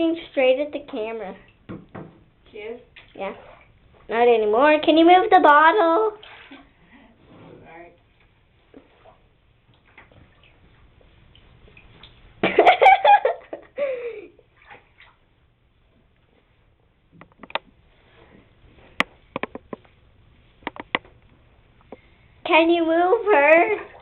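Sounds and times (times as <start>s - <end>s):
water splashing and dripping: 2.8s - 4.0s, 6.1s - 6.8s, 8.7s - 12.4s, 14.5s - 15.3s.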